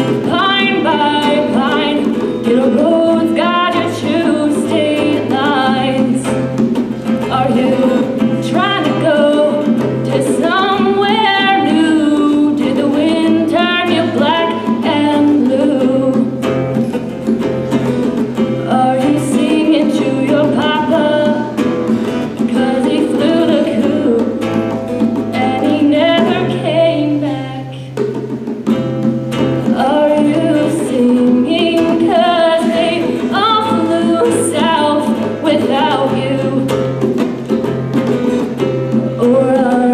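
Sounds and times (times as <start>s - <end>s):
guitar accompaniment: 0.0s - 39.9s
person singing: 7.3s - 16.4s, 18.6s - 21.6s, 22.4s - 27.9s, 29.7s - 36.8s, 39.2s - 39.9s.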